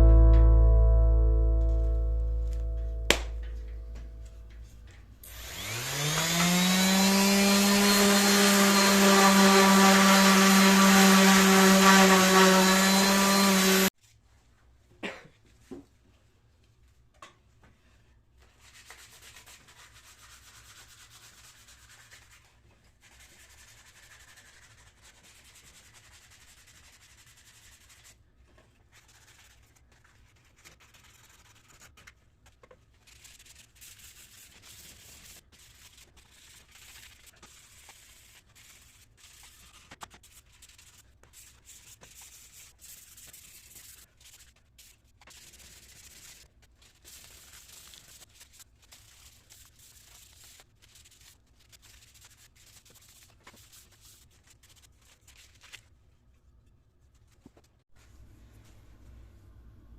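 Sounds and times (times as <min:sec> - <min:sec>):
sandpaper rubbing on wood: 0:18.6 - 0:28.2, 0:29.0 - 0:31.9, 0:33.1 - 0:46.4, 0:47.0 - 0:54.8.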